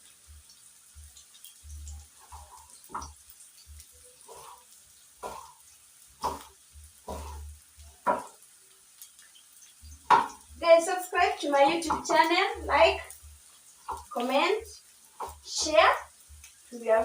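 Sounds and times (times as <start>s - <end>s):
onions sizzling in pan: 0.0s - 17.0s
knife chopping on board: 6.2s - 6.5s, 8.1s - 8.3s.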